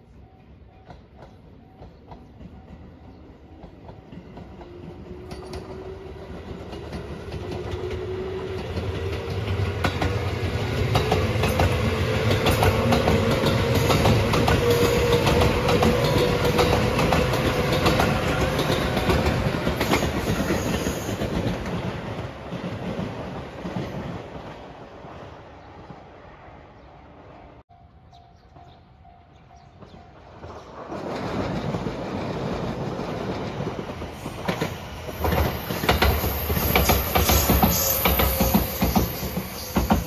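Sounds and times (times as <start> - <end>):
train wheels clicking over rail joints: 0.8 - 24.3, 29.8 - 40.0
train whine rising in pitch: 34.2 - 40.0.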